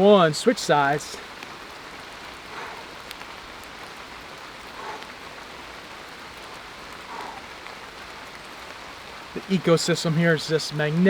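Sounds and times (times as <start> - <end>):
raindrop ticks: 0.0 - 11.0
steady rain falling: 0.0 - 11.0.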